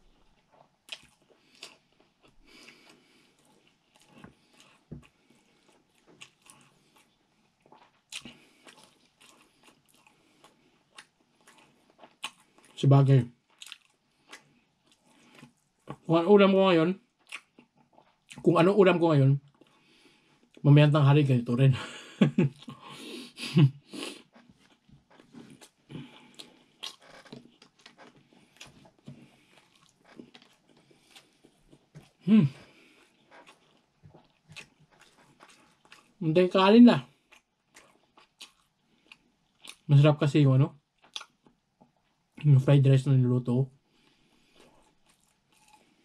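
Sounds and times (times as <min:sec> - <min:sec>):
chewing food: 0:00.0 - 0:16.1, 0:17.0 - 0:18.5, 0:23.9 - 0:36.2, 0:37.0 - 0:39.9, 0:40.8 - 0:42.4, 0:43.9 - 0:46.0.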